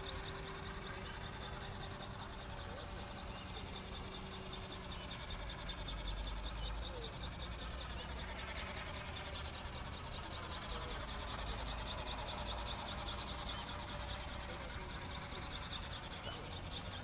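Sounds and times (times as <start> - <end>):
high-pitched pulsing chirr: 0.0 - 17.0.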